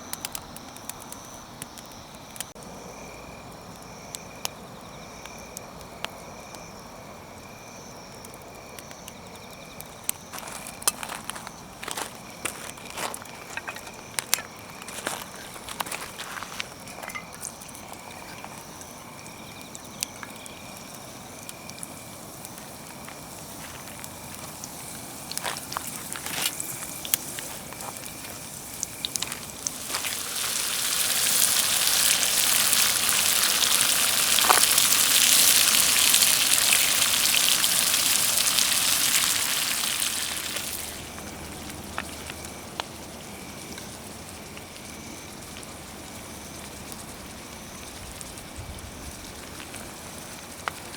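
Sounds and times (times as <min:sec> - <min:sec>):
campfire crackling with pops: 0:00.0 - 0:50.9
hot oil sizzling in a skillet: 0:10.2 - 0:50.9.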